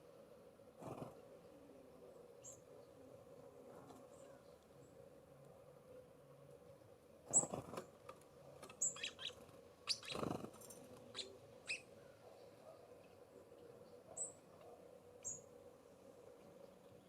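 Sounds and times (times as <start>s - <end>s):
small songbirds chirping: 2.4s - 3.1s, 7.3s - 7.7s, 8.7s - 14.5s, 15.2s - 15.6s.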